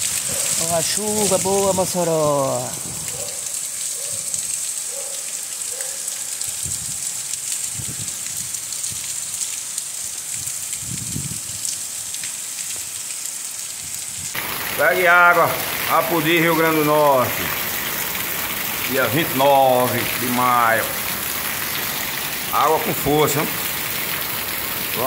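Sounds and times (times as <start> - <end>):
heavy rain falling: 0.0 - 25.0
low gusts of wind: 2.6 - 3.3, 7.7 - 9.1, 10.3 - 11.8.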